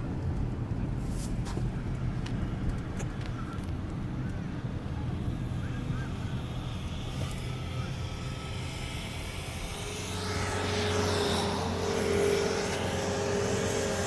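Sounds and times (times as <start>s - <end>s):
steady drone: 4.0s - 14.0s.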